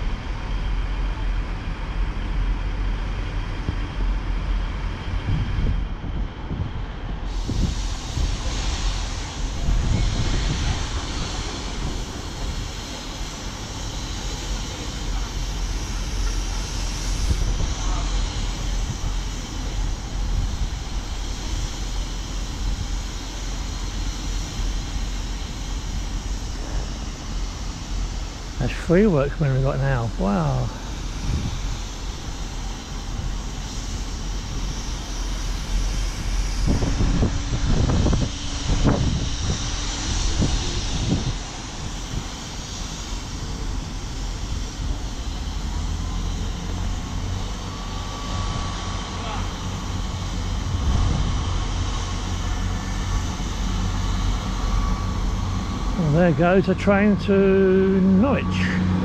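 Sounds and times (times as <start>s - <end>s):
diesel train engine droning: 0.0s - 59.0s
wind buffeting microphone: 3.6s - 14.1s, 30.8s - 34.8s, 35.5s - 45.8s, 46.9s - 57.1s.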